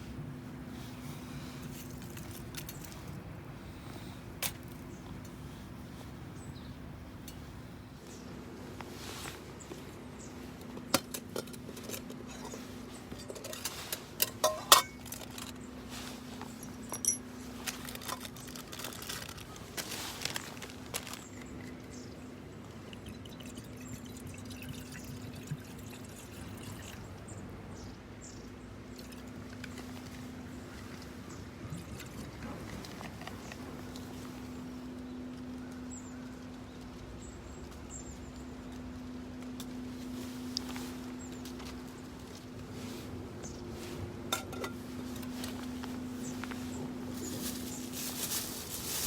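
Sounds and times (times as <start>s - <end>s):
metal cookware clinking: 13.2s - 15.0s.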